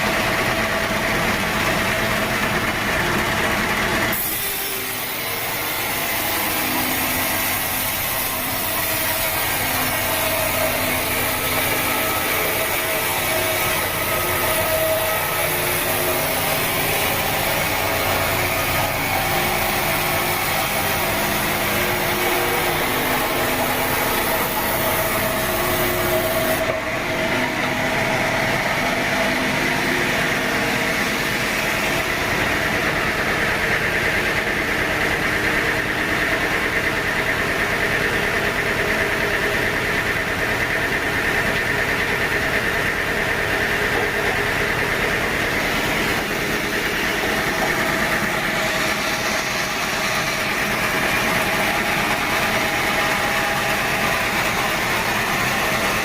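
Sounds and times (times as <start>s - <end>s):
saw motor running: 0.0s - 56.0s
saw blade hissing through wood: 4.1s - 26.7s.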